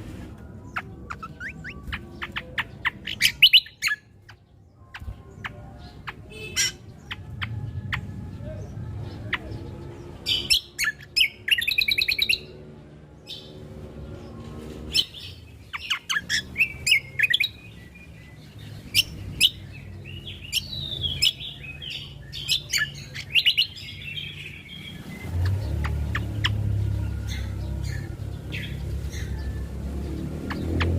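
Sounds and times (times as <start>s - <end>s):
songbird chirping and trilling: 0.0s - 30.9s.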